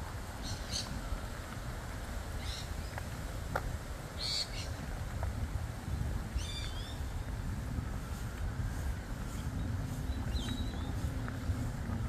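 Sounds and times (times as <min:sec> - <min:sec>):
steady low rumble: 0:00.0 - 0:12.0
birds calling: 0:00.4 - 0:01.2, 0:02.4 - 0:03.0, 0:04.2 - 0:04.8, 0:06.3 - 0:12.0.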